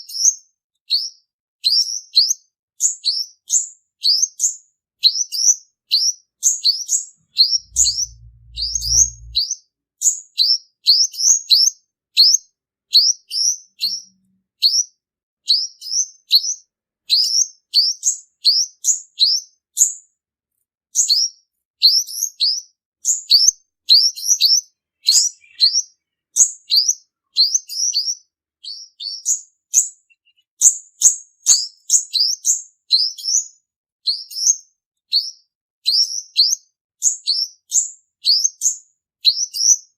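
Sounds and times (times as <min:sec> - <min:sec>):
sunbird singing high chirps: 0:06.5 - 0:09.4, 0:22.4 - 0:31.2
low rumble: 0:07.5 - 0:09.4.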